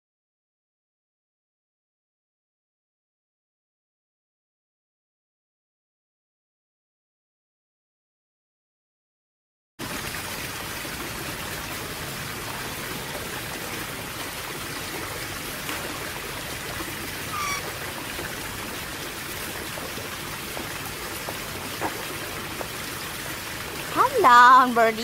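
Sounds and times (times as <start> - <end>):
stream running water: 9.8 - 25.0
bird chirp: 17.3 - 17.7.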